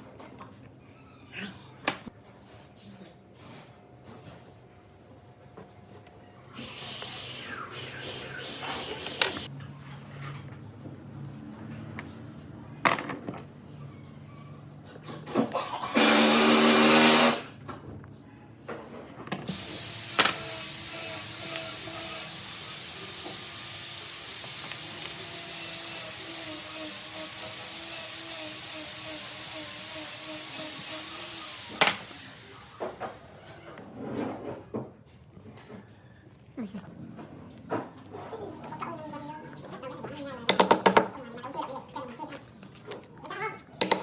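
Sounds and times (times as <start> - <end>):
power tool cutting wood: 15.6 - 17.5, 19.5 - 33.4.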